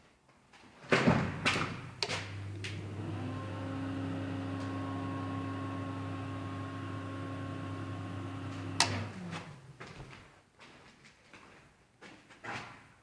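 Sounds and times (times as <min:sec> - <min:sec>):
steady machine hum: 0:02.4 - 0:09.3.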